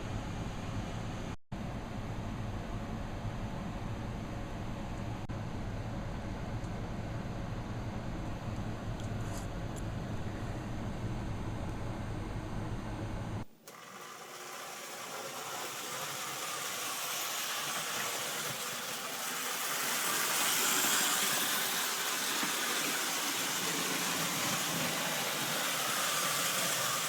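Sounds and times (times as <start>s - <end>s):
small electric motor whirring: 13.6s - 27.0s
wheels rushing on rail: 13.7s - 27.0s.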